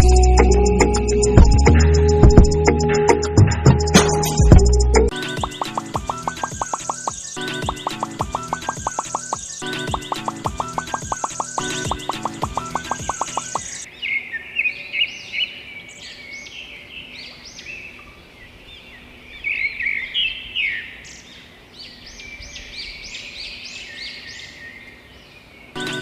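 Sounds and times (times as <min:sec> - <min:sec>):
music: 0:00.0 - 0:13.8, 0:25.8 - 0:26.0
birds chirping: 0:00.0 - 0:26.0.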